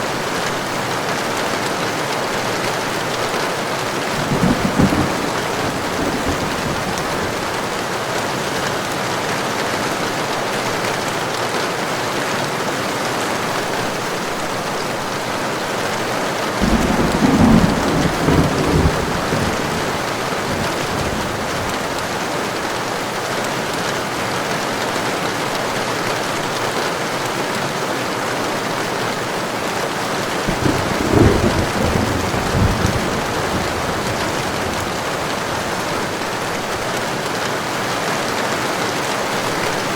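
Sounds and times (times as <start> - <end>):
heavy rain falling: 0.0 - 39.9
low rolls of thunder: 4.1 - 7.7, 16.6 - 22.2, 30.5 - 36.7.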